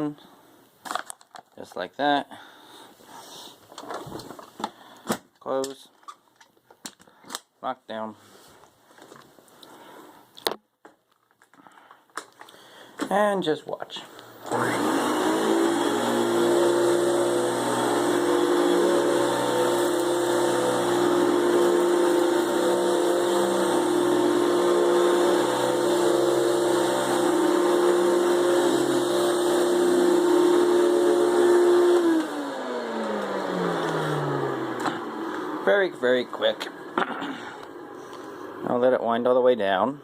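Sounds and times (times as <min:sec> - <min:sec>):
vacuum cleaner motor running: 0:14.4 - 0:35.8.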